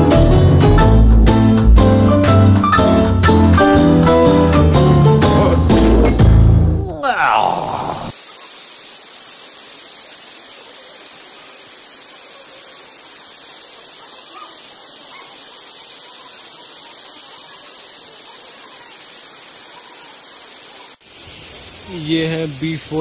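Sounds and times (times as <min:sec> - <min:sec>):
waterfall rushing: 0:05.2 - 0:23.0.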